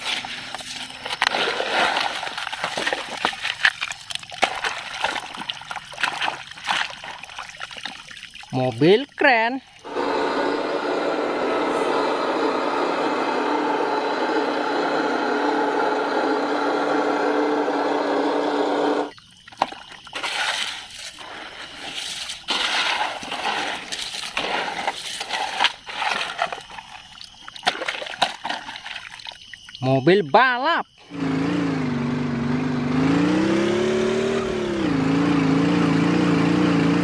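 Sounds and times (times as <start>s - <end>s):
splashing: 0.0s - 10.3s, 19.0s - 30.0s
water running: 0.0s - 10.6s.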